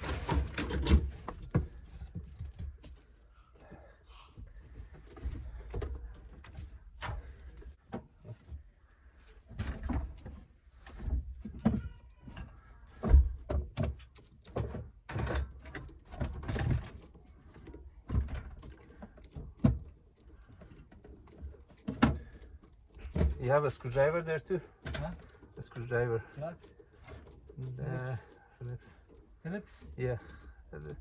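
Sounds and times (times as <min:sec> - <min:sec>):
metal tools clanking: 0:07.0 - 0:08.6, 0:15.4 - 0:31.0.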